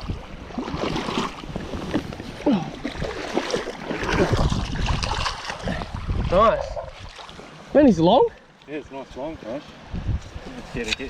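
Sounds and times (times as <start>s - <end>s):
wind buffeting microphone: 0.0s - 7.2s, 9.8s - 11.0s.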